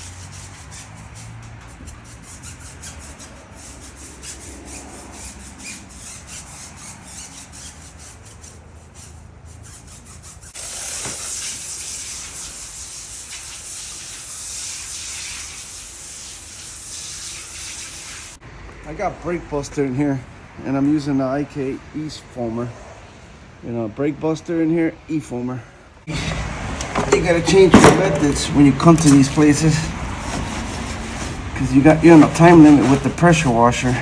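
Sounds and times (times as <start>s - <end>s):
brush rasping on tires: 0.0s - 18.4s, 26.1s - 34.0s
loud water spray hiss: 10.5s - 18.4s.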